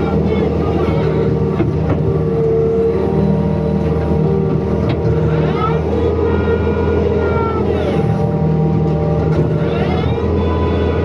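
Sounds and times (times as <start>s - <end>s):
diesel engine running: 0.0s - 11.0s
rising whine: 2.7s - 11.0s.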